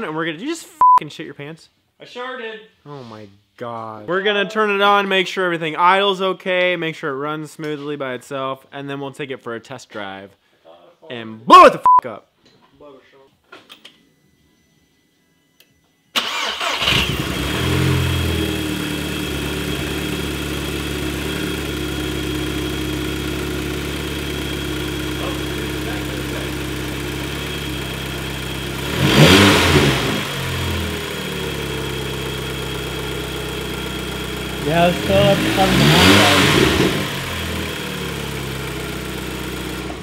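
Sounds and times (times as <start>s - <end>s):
car engine starting and idling: 16.1s - 40.0s.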